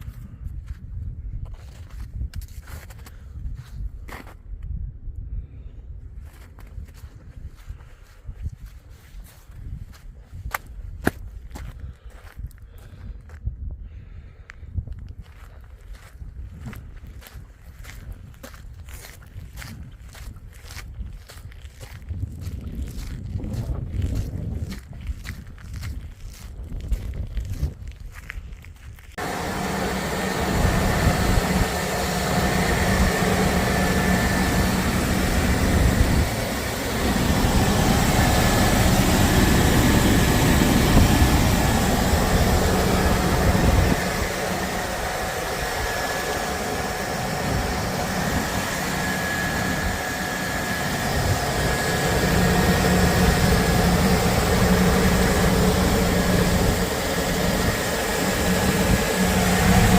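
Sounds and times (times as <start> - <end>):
engine running: 29.1 - 59.9.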